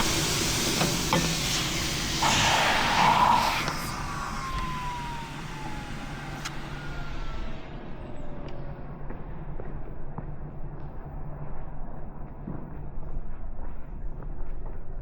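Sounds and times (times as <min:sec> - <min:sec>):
loud hiss: 0:00.0 - 0:08.0
thin whine falling in pitch: 0:00.0 - 0:09.1
steady low hum: 0:00.0 - 0:12.0.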